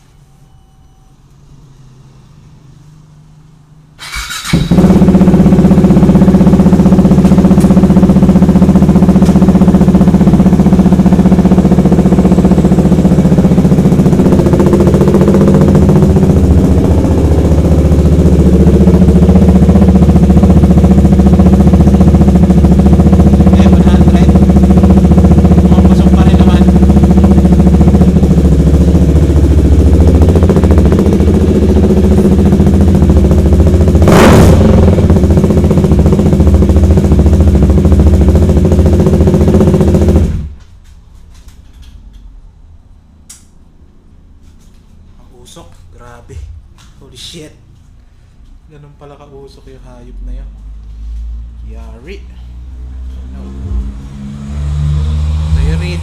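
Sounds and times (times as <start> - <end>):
loud motorcycle engine: 4.0 - 40.7, 49.6 - 56.0.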